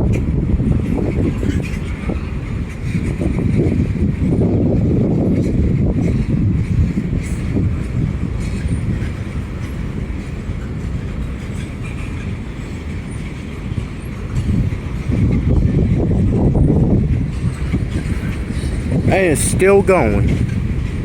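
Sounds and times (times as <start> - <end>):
freight train rumbling on rails: 0.0 - 21.0.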